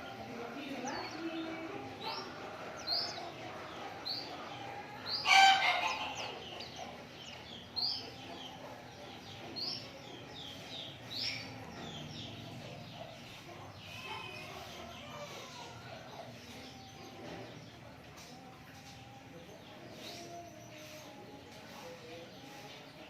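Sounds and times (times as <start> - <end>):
small birds chirping and twittering: 0.0 - 23.0.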